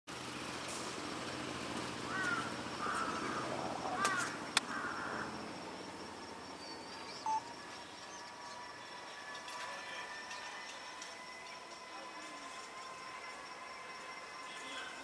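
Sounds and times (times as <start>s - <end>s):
crows cawing: 2.0s - 5.5s
short beep: 7.2s - 7.5s.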